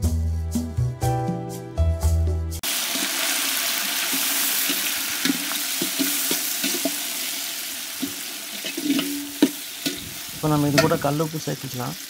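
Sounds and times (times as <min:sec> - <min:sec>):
food sizzling in hot oil: 0:02.6 - 0:12.0
metal spatula scraping a pot: 0:04.6 - 0:07.4, 0:08.0 - 0:11.1.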